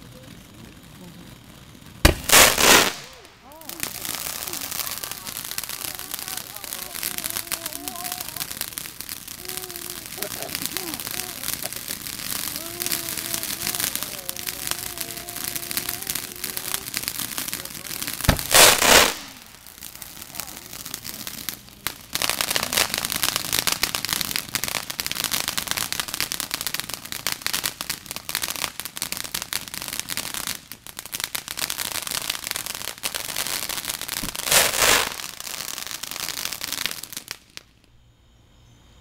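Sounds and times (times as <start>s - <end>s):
fireworks crackling pops: 0.0s - 38.0s
fireworks bang: 2.0s - 26.8s, 33.0s - 36.5s.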